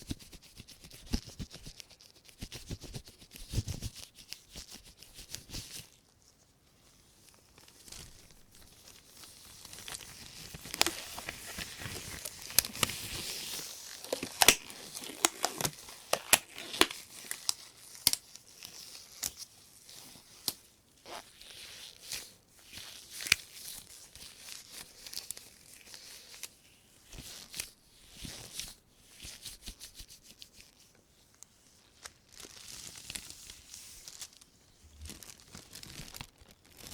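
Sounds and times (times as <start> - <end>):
plastic bag crinkling: 31.9 - 36.9.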